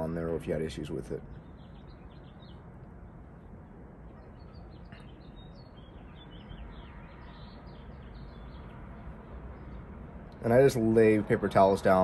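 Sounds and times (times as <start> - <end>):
low background noise: 0.0 - 12.0
small birds chirping: 0.0 - 12.0.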